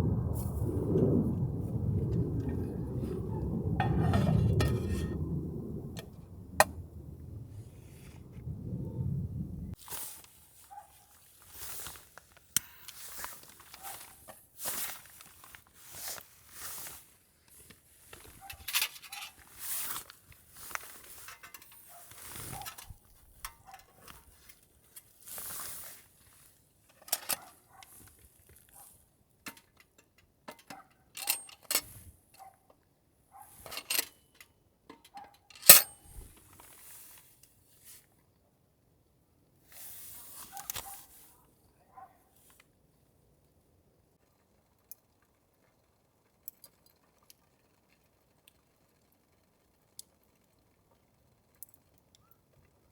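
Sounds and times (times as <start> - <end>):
metal utensils clinking: 35.6 - 35.9.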